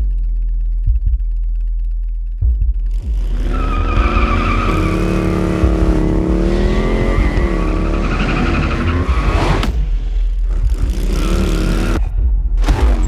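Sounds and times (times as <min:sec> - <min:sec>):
motorcycle engine running hard: 0:02.9 - 0:12.0
tyres squealing: 0:03.2 - 0:09.7.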